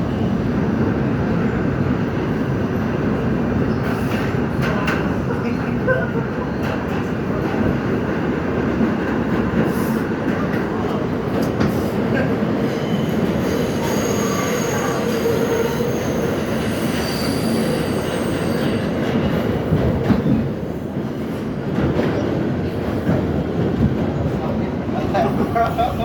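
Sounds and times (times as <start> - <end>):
subway train running on rails: 0.0 - 26.0
high-pitched wheel squeals: 13.0 - 19.0.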